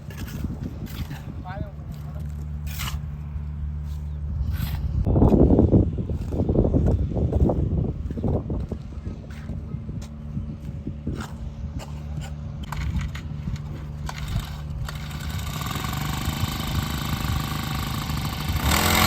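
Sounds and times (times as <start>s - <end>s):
engine humming: 0.0s - 19.0s
rough loud noise: 12.2s - 19.0s.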